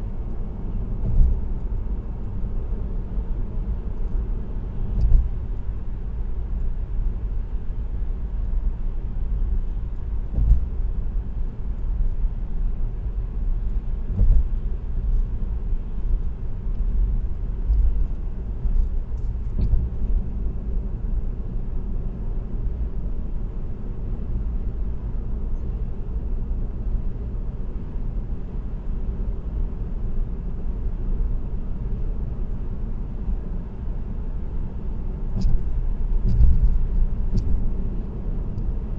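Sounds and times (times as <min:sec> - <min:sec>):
tyre and road noise: 0:00.0 - 0:22.9, 0:34.2 - 0:38.9
brief thumps: 0:35.4 - 0:37.7.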